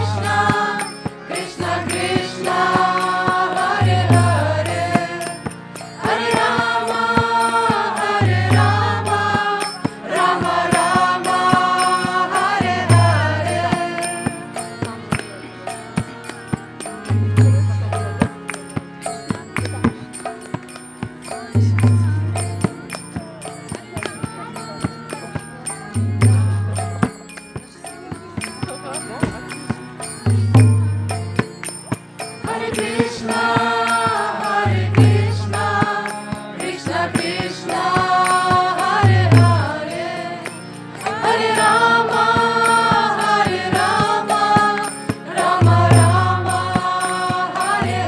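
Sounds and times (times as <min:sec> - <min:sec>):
group chanting: 0:00.0 - 0:14.4, 0:32.4 - 0:40.4, 0:41.0 - 0:48.0
hand cymbals: 0:00.0 - 0:48.0.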